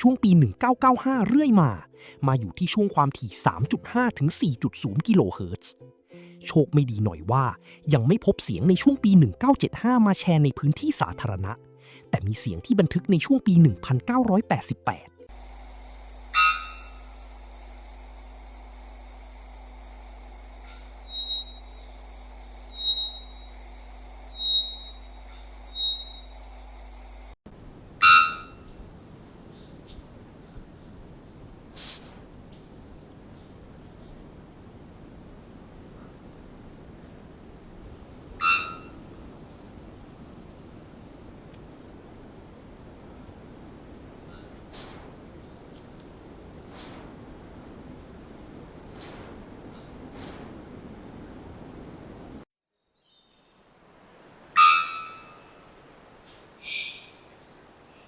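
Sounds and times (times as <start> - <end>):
faint steady hum: 15.3 - 52.4, 53.0 - 58.0
recording hiss: 15.3 - 58.0
bird whistle call: 15.7 - 27.3, 44.6 - 45.2, 46.6 - 47.2, 48.8 - 49.4, 50.1 - 50.6, 54.6 - 55.4.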